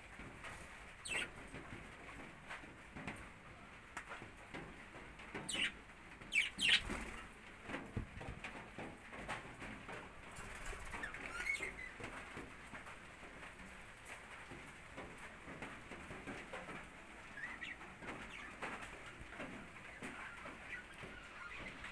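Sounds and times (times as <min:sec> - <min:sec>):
budgerigars chirping and chattering: 0:01.0 - 0:01.3, 0:05.5 - 0:07.2, 0:10.6 - 0:11.9, 0:17.4 - 0:18.7, 0:19.9 - 0:21.9
small ticks and scratches: 0:04.0 - 0:21.9.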